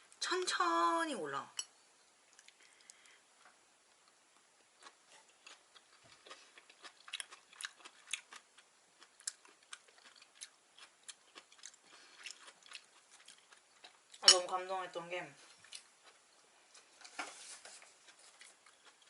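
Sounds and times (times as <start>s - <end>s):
wet chewing and mouth smacks: 2.3s - 3.2s, 3.9s - 14.2s, 18.0s - 19.0s.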